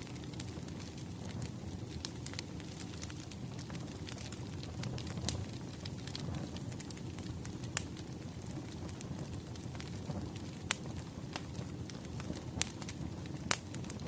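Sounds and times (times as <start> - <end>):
sharp pops from fire: 0.0 - 14.0
wood fire crackling: 0.0 - 14.0.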